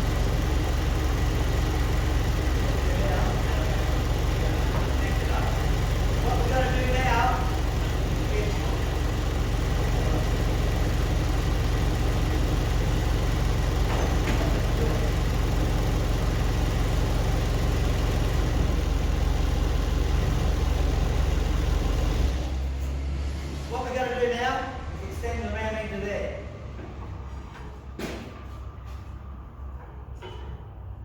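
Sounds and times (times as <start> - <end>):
engine idling: 0.0 - 22.7.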